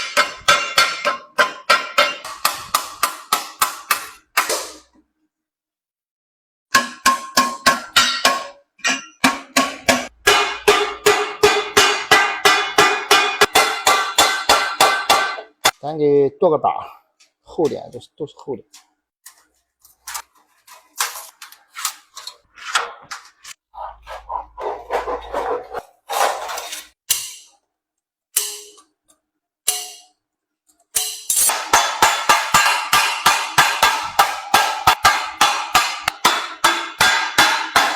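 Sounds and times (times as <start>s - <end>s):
hammer striking sheet metal: 0.0s - 4.9s, 6.7s - 15.8s, 27.1s - 27.6s, 28.3s - 29.0s, 29.6s - 30.2s, 30.9s - 37.9s.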